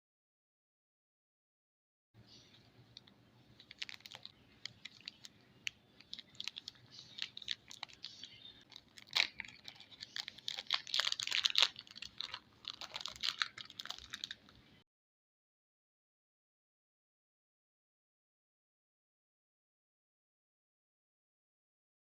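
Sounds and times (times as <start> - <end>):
packaging crinkling: 3.0 - 14.6.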